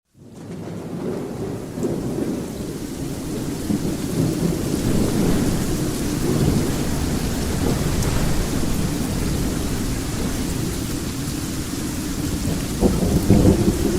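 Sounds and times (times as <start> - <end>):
steady rain: 0.1 - 13.9
rolling thunder rumble: 0.2 - 13.9.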